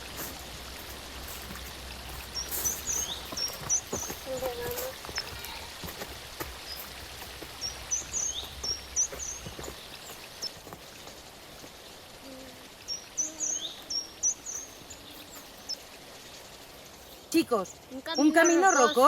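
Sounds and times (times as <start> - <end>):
outdoor background noise: 0.0 - 19.0
songbird singing: 0.0 - 19.0.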